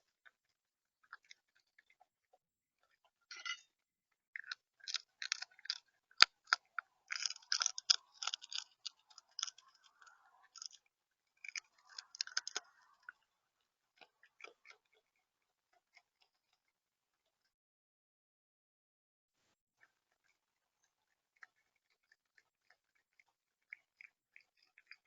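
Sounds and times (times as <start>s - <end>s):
bird pecking and cracking seeds: 4.3s - 13.4s, 14.0s - 16.6s, 20.9s - 25.0s.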